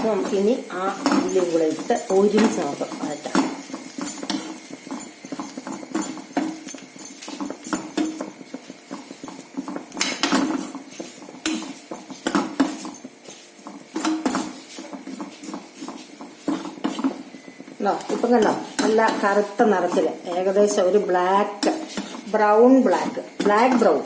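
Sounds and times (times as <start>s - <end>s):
spoon scraping a pan: 0.0s - 24.0s.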